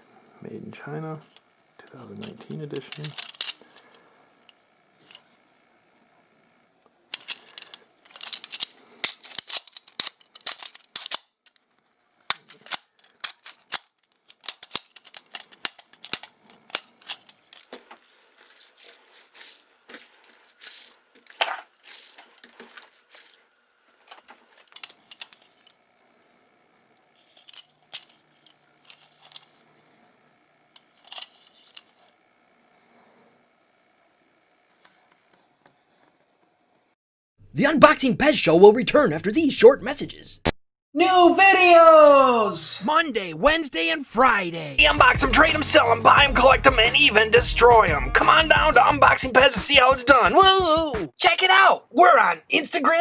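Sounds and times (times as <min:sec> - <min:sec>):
plastic toy clicking and rattling: 0:02.2 - 0:03.9, 0:07.1 - 0:11.7, 0:12.3 - 0:23.4, 0:24.0 - 0:25.8, 0:27.2 - 0:29.6, 0:30.7 - 0:32.1.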